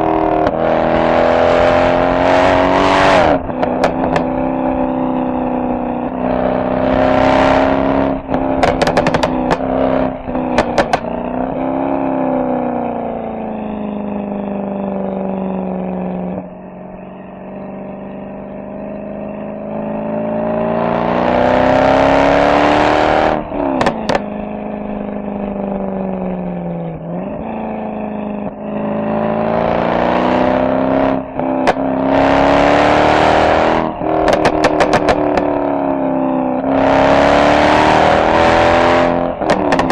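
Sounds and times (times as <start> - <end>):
car exhaust pulling hard: 0.0 - 39.9
exhaust crackles and pops: 3.3 - 4.4, 8.1 - 11.4, 23.6 - 24.4, 31.3 - 32.0, 33.8 - 35.7, 39.4 - 39.9.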